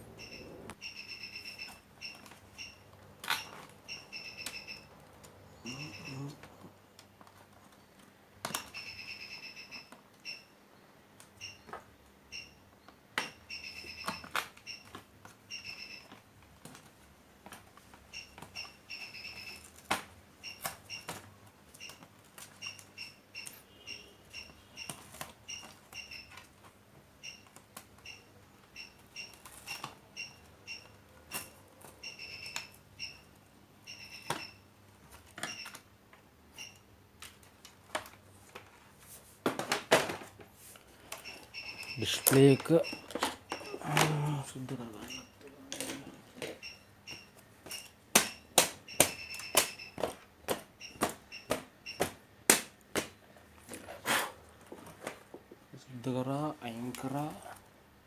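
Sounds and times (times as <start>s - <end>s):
short high squeaks: 0.0s - 1.6s
plastic parts clicking and knocking: 39.4s - 44.1s.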